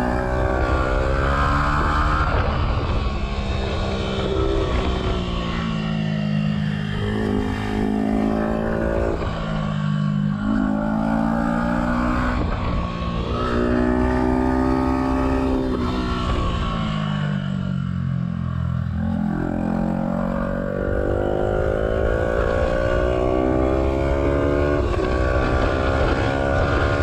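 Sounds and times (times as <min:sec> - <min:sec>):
rushing wind noise: 0:00.0 - 0:05.9
motorcycle engine accelerating: 0:00.0 - 0:27.0.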